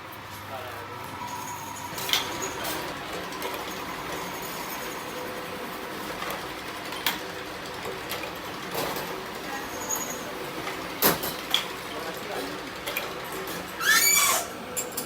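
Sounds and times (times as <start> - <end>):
machine running: 0.8 - 11.1.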